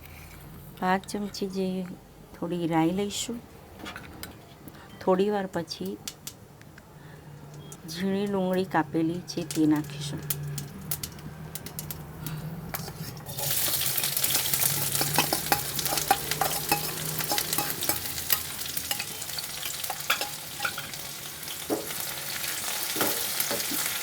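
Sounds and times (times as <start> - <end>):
onion sizzling in hot oil: 13.2 - 24.0
spoon clicking against pan: 14.7 - 21.0.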